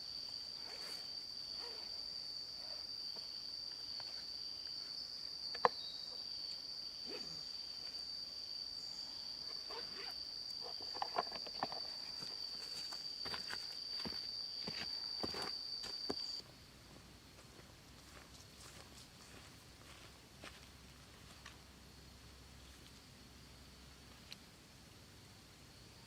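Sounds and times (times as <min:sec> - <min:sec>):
high-pitched insect drone: 0:00.0 - 0:16.4.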